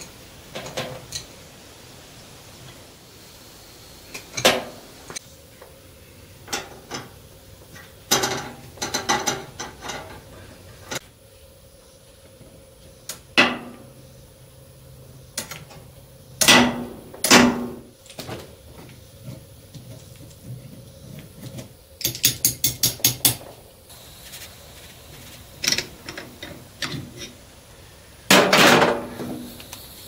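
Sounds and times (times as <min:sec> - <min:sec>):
metal tools clanking on copper tubing: 0:06.5 - 0:10.4, 0:25.6 - 0:27.4.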